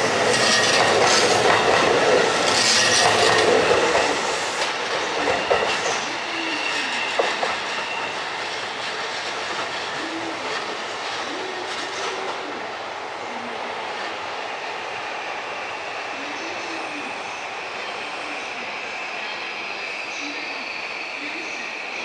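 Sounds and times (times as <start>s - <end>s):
train wheels clattering over joints: 0.0s - 6.0s
high wheel squeal: 5.1s - 8.9s.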